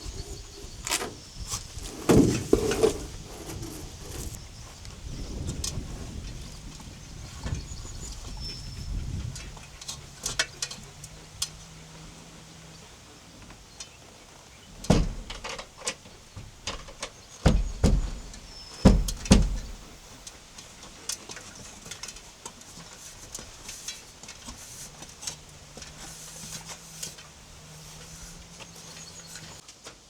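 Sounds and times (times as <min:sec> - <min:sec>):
heavy thuds and knocks: 0:01.8 - 0:04.4, 0:17.4 - 0:20.2.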